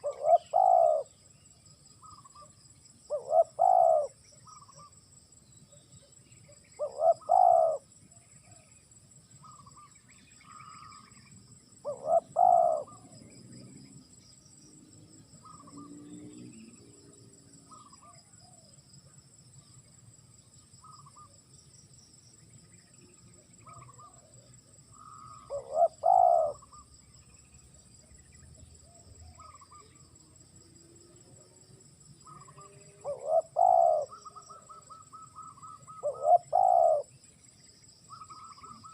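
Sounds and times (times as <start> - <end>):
dove cooing: 0.0 - 1.2, 3.1 - 4.9, 6.8 - 8.6, 11.8 - 13.4, 23.6 - 26.9, 32.3 - 37.1
faint small bird chirps: 0.0 - 30.1, 32.2 - 38.9
high-pitched insect-like whine: 24.9 - 38.9.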